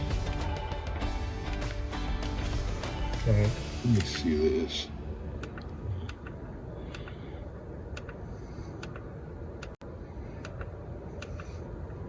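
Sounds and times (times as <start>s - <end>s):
road rumble inside car: 3.8s - 12.0s
turn signal ticking: 5.4s - 7.2s, 7.9s - 8.2s, 8.8s - 9.8s.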